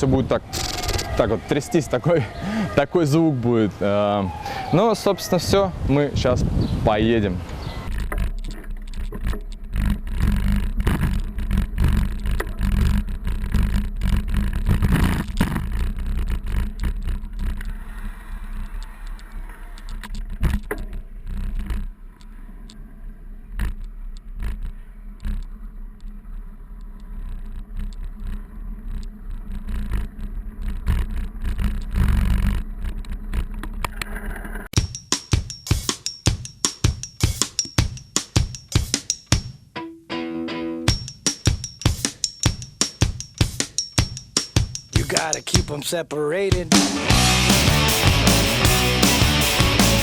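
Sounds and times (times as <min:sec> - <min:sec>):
camera rattling over street: 0:00.0 - 0:01.9, 0:07.2 - 0:17.9, 0:18.5 - 0:34.8
music with drum beat: 0:34.8 - 0:39.7, 0:40.9 - 0:45.8, 0:46.4 - 0:50.0.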